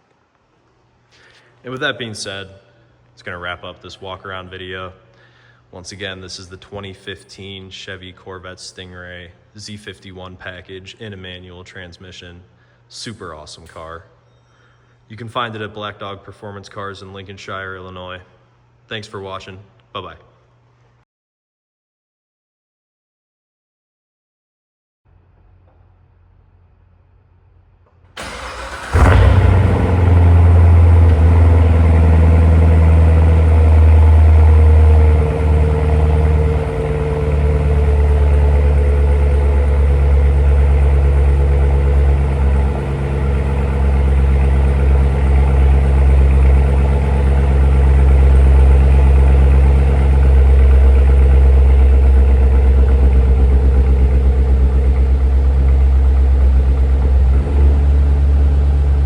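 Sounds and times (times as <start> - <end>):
car engine starting and idling: 28.0 - 59.0.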